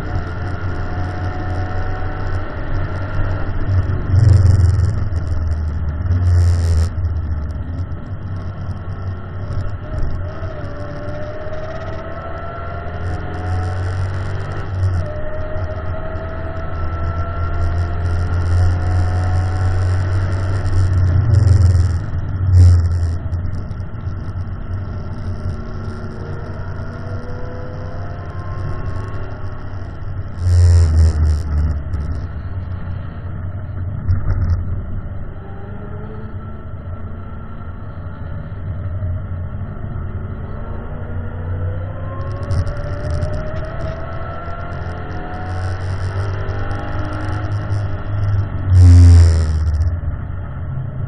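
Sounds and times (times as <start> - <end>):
car engine accelerating: 0.0 - 51.0
road and wind noise: 0.0 - 51.0.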